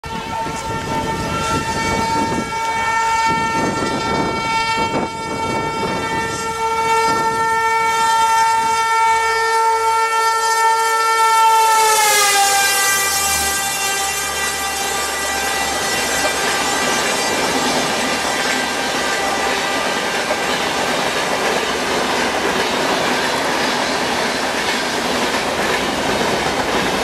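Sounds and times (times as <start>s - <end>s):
train horn blast: 0.0s - 20.8s
train wheel and rail noise: 0.0s - 27.0s.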